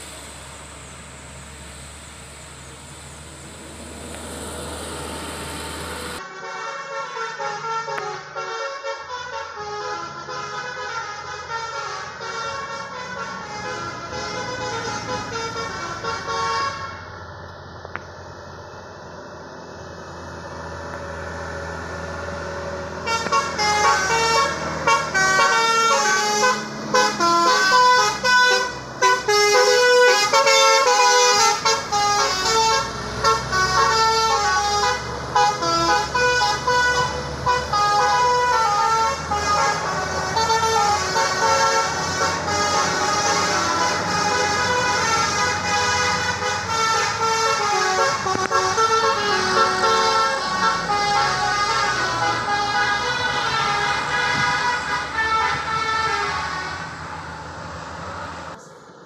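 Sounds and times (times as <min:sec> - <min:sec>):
truck engine rumble: 0:00.0 - 0:59.0
multi-tone air horn melody: 0:06.2 - 0:17.1, 0:23.0 - 0:56.9.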